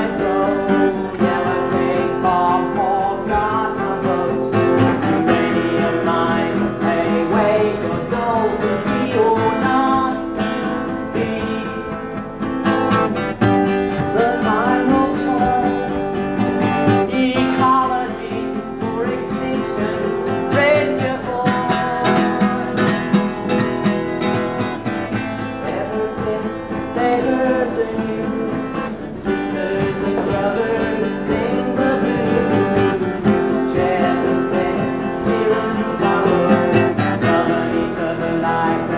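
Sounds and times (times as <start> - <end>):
solo folk music: 0.0 - 38.9.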